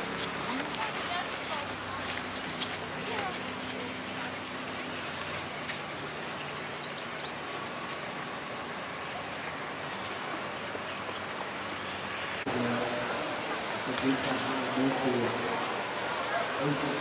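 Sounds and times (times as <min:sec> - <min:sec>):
busy street background noise: 0:00.0 - 0:17.0
bird chirping: 0:06.6 - 0:07.4.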